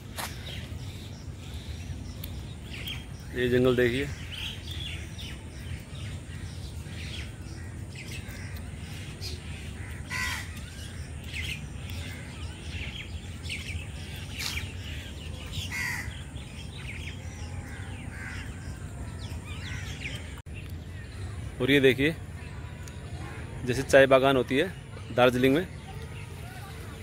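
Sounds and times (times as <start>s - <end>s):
steady low rumble: 0.0s - 21.6s
birds chirping: 0.0s - 27.0s
birds making harsh calls: 0.0s - 27.0s.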